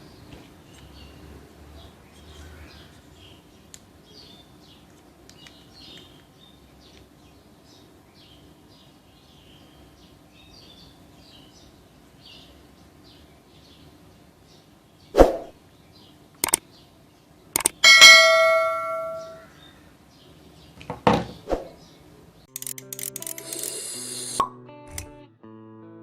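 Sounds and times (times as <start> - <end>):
ringing metal strike: 17.8 - 19.5.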